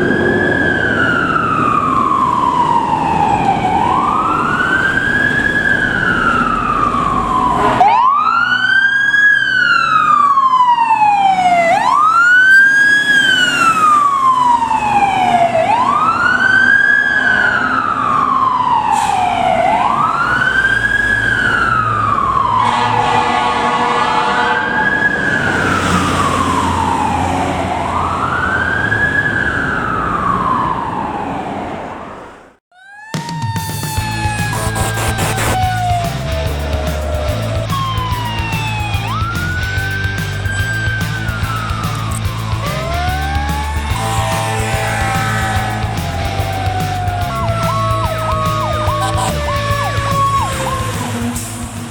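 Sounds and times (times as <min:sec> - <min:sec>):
fire truck siren wailing: 0:00.0 - 0:51.9
truck engine running: 0:34.1 - 0:51.9.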